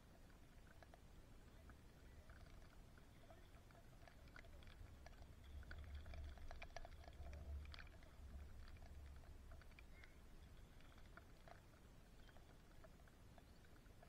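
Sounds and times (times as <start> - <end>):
raindrops ticking on camera: 0.0 - 14.0.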